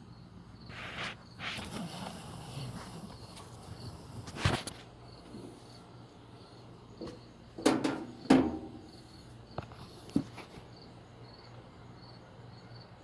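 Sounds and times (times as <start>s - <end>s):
insect chirping: 5.0s - 10.0s, 10.7s - 13.0s
sharp ringing knocks: 7.6s - 9.0s.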